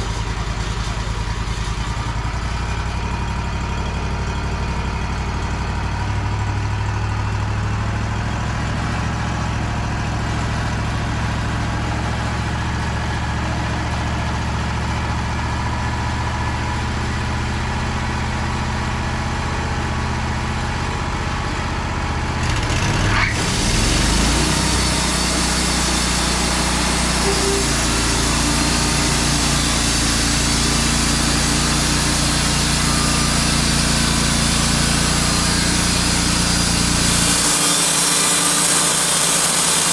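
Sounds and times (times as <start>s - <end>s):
sawmill engine idling: 36.8s - 39.9s
band saw cutting log: 36.9s - 39.9s.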